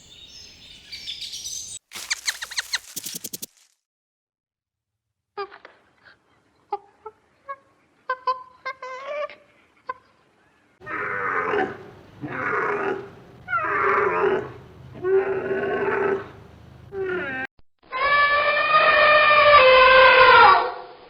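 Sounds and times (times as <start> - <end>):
short high animal calls: 1.9 - 3.3
loud drawn-out animal calls: 10.8 - 21.0.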